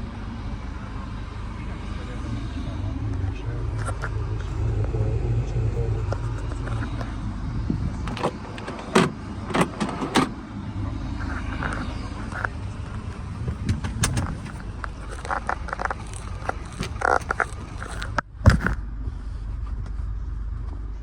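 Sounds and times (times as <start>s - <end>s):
truck diesel engine idling: 0.0s - 18.2s
sharp clicks and knocks: 8.0s - 10.4s, 13.5s - 18.8s.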